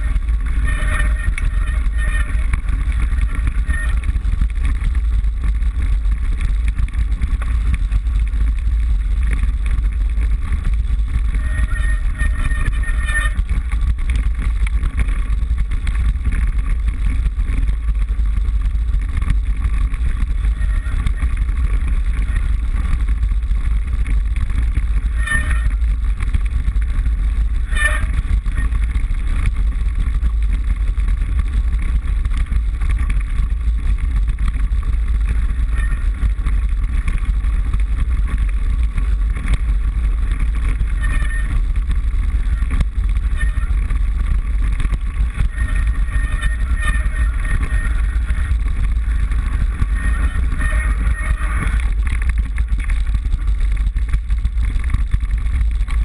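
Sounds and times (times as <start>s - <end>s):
mountain bike rumbling: 0.0s - 56.0s.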